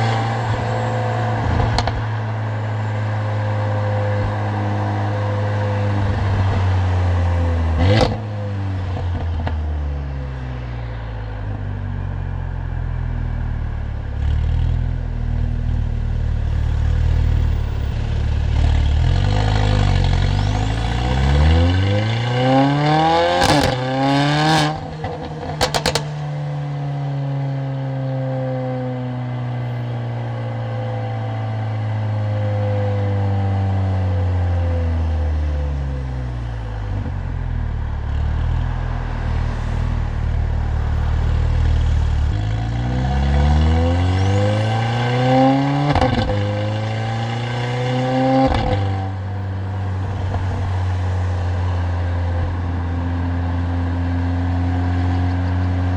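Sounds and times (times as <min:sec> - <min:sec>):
car engine accelerating hard: 0:00.0 - 0:09.8, 0:12.4 - 0:28.8, 0:30.7 - 0:55.9
sharp exhaust cracks: 0:25.5 - 0:26.2.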